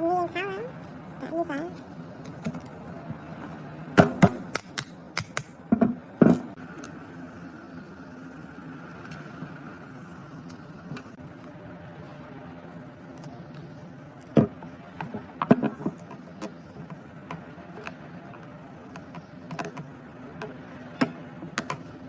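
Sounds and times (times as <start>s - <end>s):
steady low hum: 0.0s - 22.0s
hard objects knocking and clicking: 4.0s - 6.5s, 18.9s - 21.9s.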